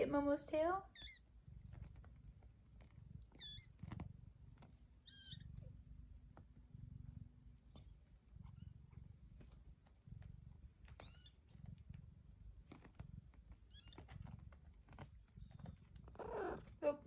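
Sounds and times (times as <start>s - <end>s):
cat purring: 0.0s - 17.0s
kitten squeaks: 0.9s - 1.3s, 3.3s - 4.0s, 5.0s - 5.6s, 10.9s - 11.4s, 13.7s - 14.4s, 15.4s - 16.7s.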